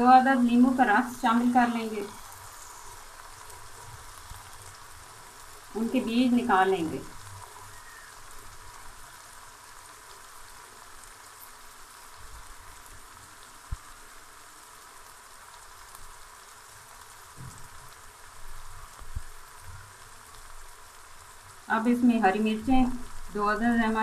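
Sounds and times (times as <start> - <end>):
curry sizzling in oil: 0.0 - 24.0.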